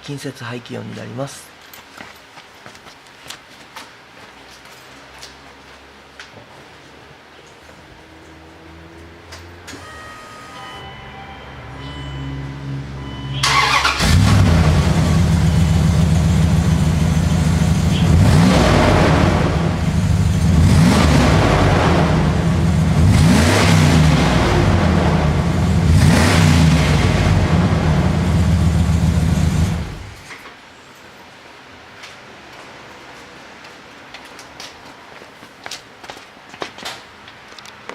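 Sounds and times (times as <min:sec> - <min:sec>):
car engine idling: 0:12.2 - 0:30.3
car engine revving: 0:12.3 - 0:30.3.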